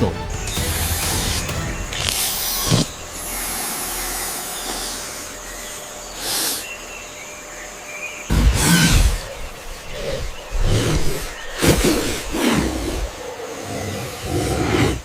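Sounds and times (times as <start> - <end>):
steady hiss: 0.0 - 7.6.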